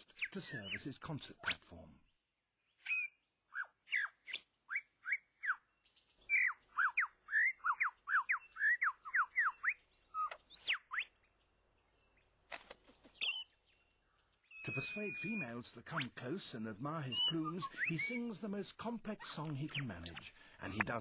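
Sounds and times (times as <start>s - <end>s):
lyrebird singing whistled notes: 0.0s - 0.9s, 2.0s - 12.3s, 13.1s - 21.0s.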